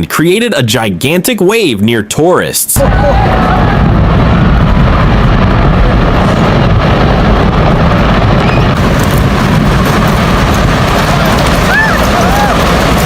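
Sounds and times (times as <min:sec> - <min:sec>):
giant wave rushing rumble: 0:02.8 - 0:13.0.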